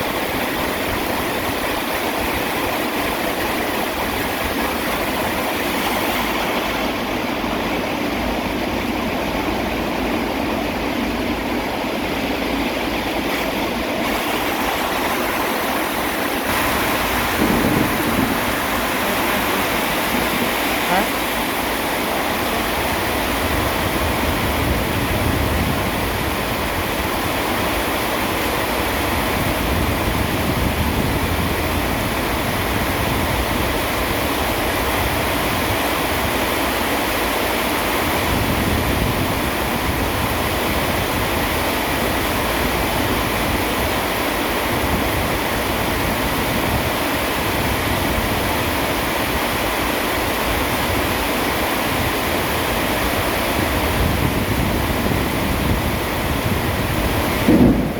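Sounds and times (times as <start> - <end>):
heavy rain hissing: 0.0 - 57.9.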